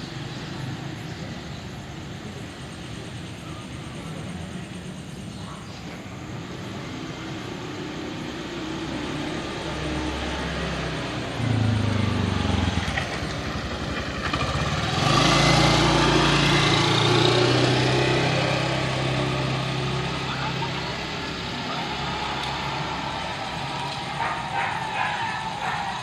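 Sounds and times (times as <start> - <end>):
tyre and road noise: 0.0 - 26.0
loud vehicle passing: 6.2 - 26.0
vehicle engine passing: 6.2 - 26.0.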